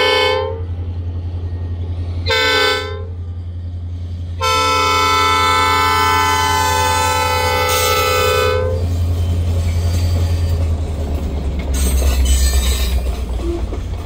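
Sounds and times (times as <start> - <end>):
locomotive air horn: 0.0 - 0.8, 2.2 - 3.2, 4.4 - 9.0
freight train cars rumbling past: 0.0 - 14.0.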